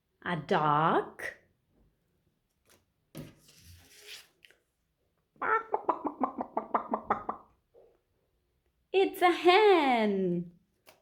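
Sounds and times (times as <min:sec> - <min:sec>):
hen-like clucks: 0:05.4 - 0:07.6.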